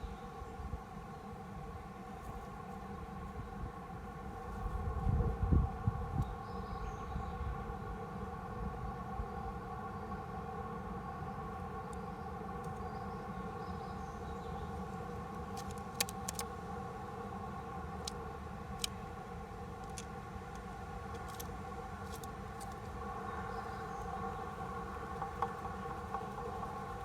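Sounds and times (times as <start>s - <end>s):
sharp clicks: 15.4s - 16.5s, 19.8s - 22.9s.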